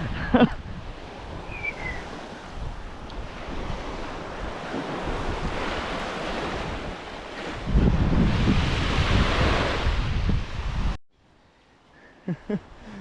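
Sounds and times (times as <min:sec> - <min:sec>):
surf washing: 0:00.0 - 0:11.0
wind on microphone: 0:00.0 - 0:11.0
high falling chirp: 0:01.4 - 0:02.1.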